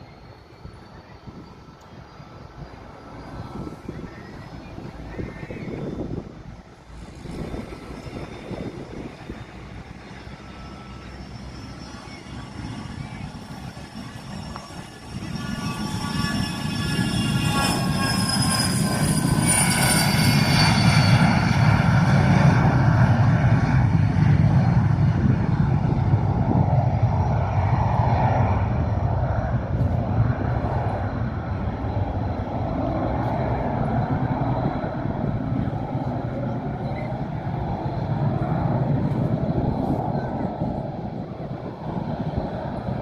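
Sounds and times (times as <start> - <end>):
airliner engines passing: 0.0 - 43.0.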